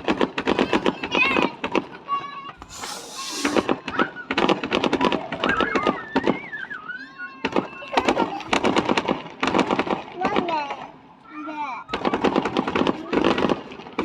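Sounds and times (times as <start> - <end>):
fireworks crackling pops: 2.6 - 5.6, 11.9 - 14.0.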